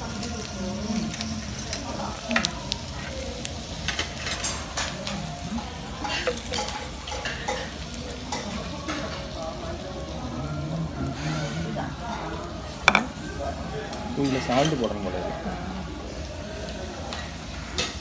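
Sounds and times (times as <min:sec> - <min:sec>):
meat sizzling on a griddle: 0:00.0 - 0:18.0
utensils and dishes clinking: 0:01.0 - 0:10.0, 0:11.0 - 0:13.4, 0:14.2 - 0:15.2.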